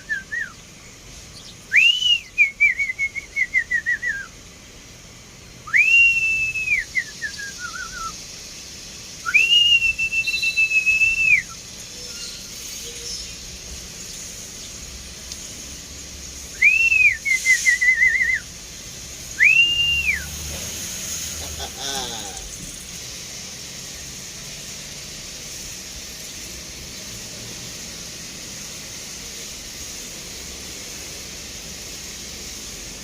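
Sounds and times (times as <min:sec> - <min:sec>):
person whistling: 0:00.0 - 0:00.5, 0:01.7 - 0:04.3, 0:05.7 - 0:08.2, 0:09.2 - 0:11.6, 0:16.6 - 0:18.5, 0:19.4 - 0:20.4
wavering whistled trills: 0:00.0 - 0:04.4, 0:05.6 - 0:18.6, 0:19.2 - 0:21.2.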